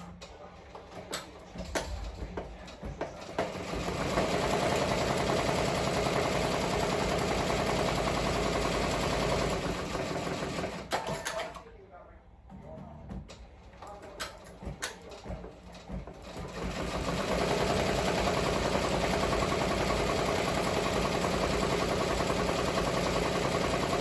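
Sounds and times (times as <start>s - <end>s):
scattered clicks and knocks: 0.1s - 6.8s, 13.1s - 24.0s
embroidery machine clattering: 13.3s - 24.0s.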